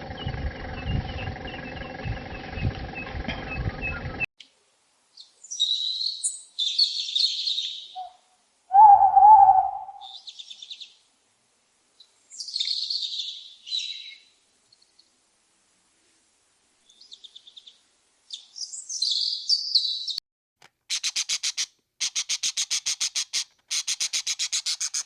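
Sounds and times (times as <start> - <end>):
birds trilling song: 0.0 - 4.3, 5.2 - 11.0
low hooting bird call: 8.0 - 10.3.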